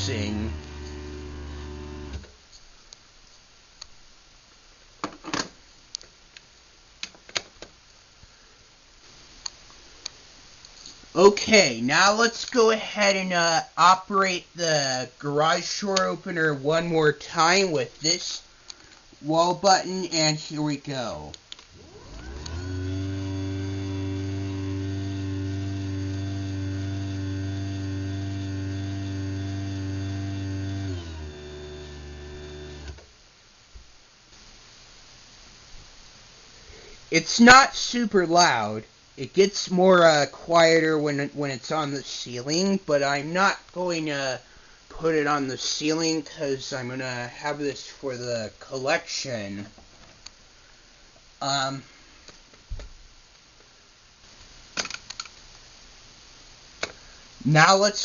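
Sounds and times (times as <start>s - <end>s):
garage door opener motor humming: 0.0s - 2.3s, 21.7s - 33.0s.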